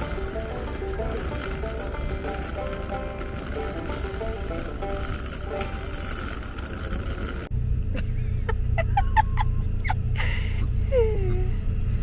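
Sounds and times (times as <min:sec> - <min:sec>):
background music: 0:00.0 - 0:06.6
train car rumbling: 0:00.0 - 0:12.0.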